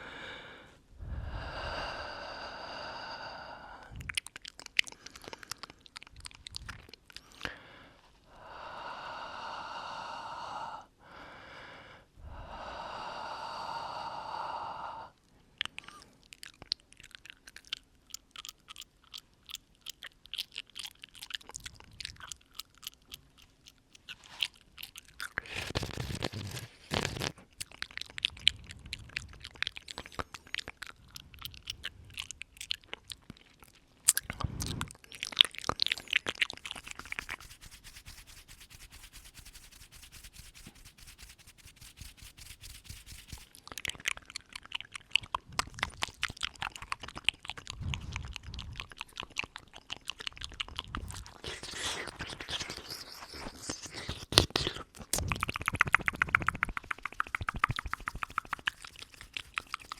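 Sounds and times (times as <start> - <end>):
long exhales: 0.0 - 4.0, 7.4 - 15.2
wet mouth clicks: 1.7 - 7.6, 15.6 - 59.9.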